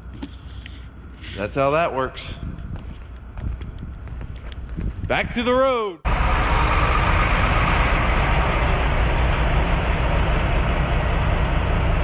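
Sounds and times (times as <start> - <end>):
truck engine and road noise: 6.1 - 12.0.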